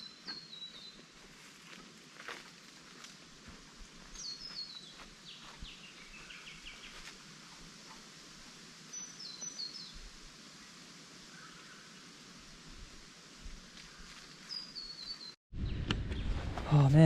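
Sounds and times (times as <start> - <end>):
steady background hiss: 0.0 - 15.4
small birds calling: 4.1 - 7.1.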